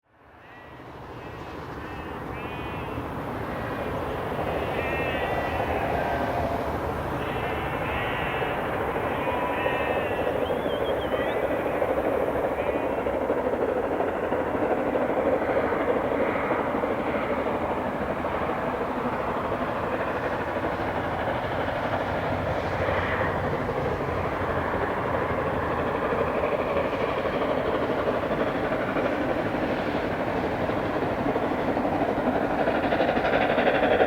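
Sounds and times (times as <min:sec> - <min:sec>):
running train noise: 0:00.1 - 0:34.0
steam locomotive exhaust rush: 0:00.1 - 0:34.0.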